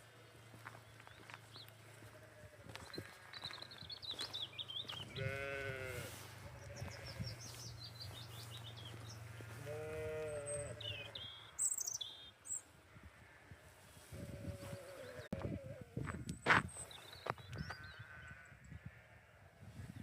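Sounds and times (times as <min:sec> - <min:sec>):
small birds chirping: 0:00.0 - 0:12.7, 0:13.9 - 0:19.1
lambs bleating: 0:04.8 - 0:07.6, 0:08.9 - 0:11.1.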